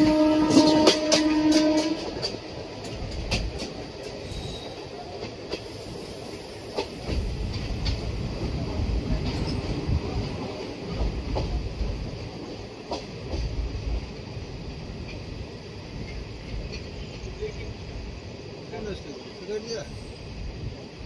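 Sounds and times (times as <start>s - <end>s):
train horn: 0.0s - 2.3s
wheels clicking over rail joints: 0.0s - 5.8s, 15.0s - 17.7s
train rumbling: 0.0s - 21.0s.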